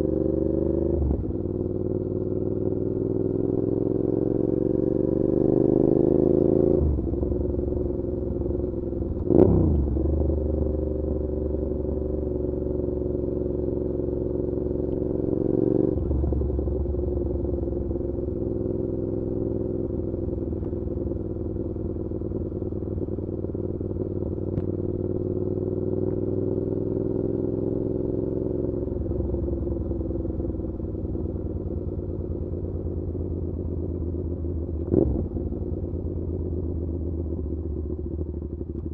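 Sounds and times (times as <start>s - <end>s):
motorcycle engine revving: 8.4s - 30.6s, 34.8s - 35.6s.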